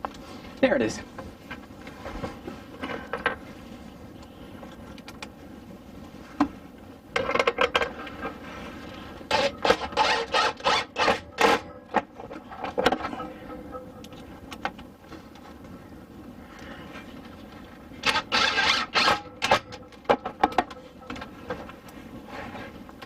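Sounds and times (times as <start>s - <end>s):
hard parts scraping against wood: 7.2s - 14.3s, 18.0s - 22.8s.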